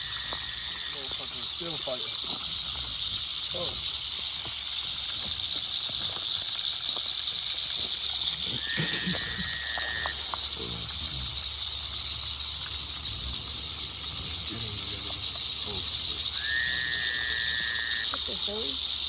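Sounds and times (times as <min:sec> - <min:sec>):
insect chorus buzzing: 0:00.0 - 0:19.0.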